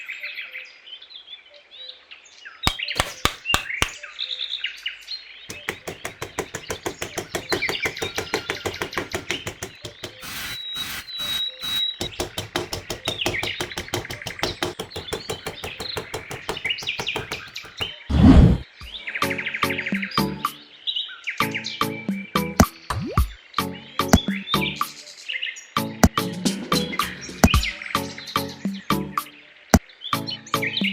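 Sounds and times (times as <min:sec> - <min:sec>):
sharp clicks: 0:02.7 - 0:04.0, 0:05.5 - 0:17.9.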